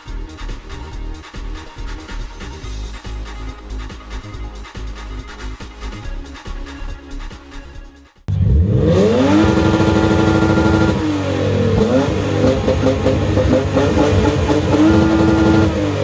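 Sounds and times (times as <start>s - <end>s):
car engine revving: 8.3s - 16.0s.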